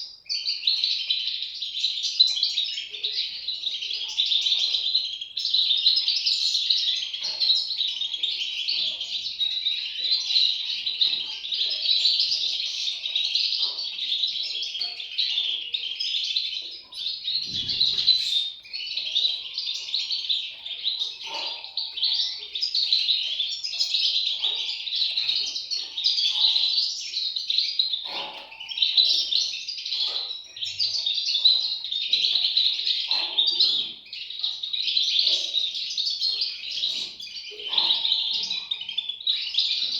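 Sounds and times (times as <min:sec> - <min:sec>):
chicks chirping: 0:00.0 - 0:39.9.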